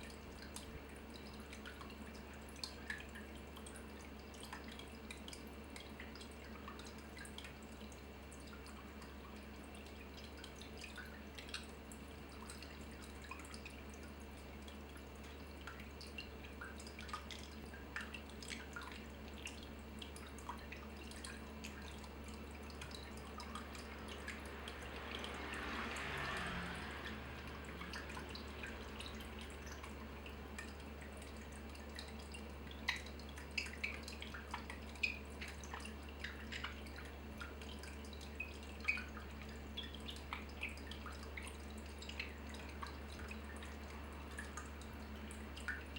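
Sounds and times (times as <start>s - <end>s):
low steady hum: 0.0s - 45.9s
water dripping: 0.0s - 45.9s
water rushing: 20.7s - 38.1s.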